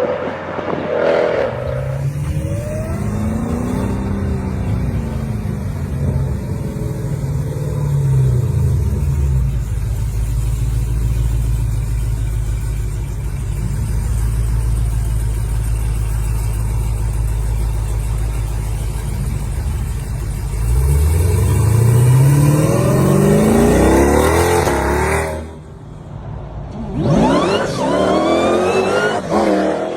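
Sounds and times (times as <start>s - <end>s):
engine revving and accelerating: 0.0s - 9.9s, 18.8s - 25.7s, 26.7s - 29.9s.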